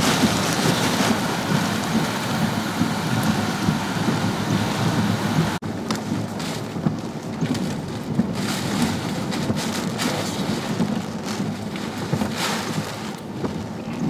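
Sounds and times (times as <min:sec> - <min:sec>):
driving rain: 0:00.0 - 0:14.0
hurricane wind buffeting microphone: 0:00.0 - 0:14.0.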